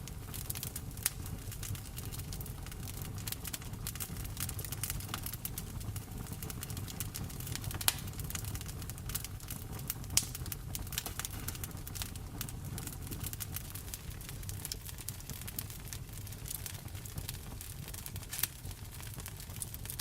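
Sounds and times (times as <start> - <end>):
loud fire pops: 0.0 - 20.0
wood fire crackling: 0.0 - 20.0.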